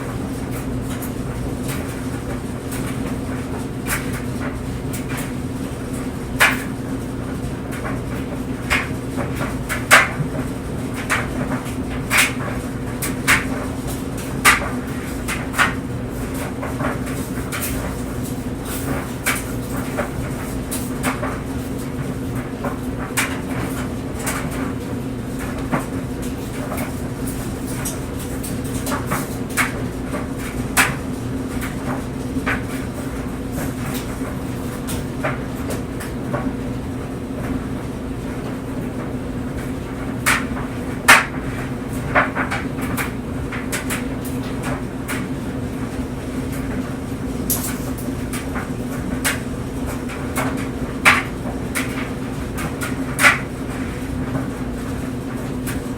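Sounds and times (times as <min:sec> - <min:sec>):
clothes dryer running: 0:00.0 - 0:55.9.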